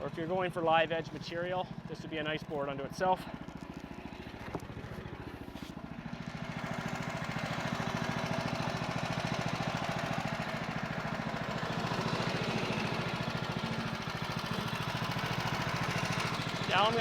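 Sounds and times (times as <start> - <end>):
sawmill engine running: 0.0 - 17.0.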